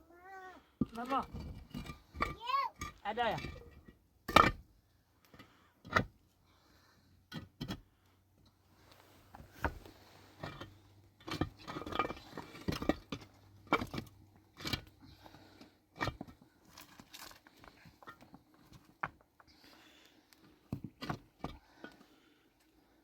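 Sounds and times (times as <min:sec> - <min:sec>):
scraping and rustling: 0:08.8 - 0:19.7
objects being handled: 0:08.8 - 0:22.3.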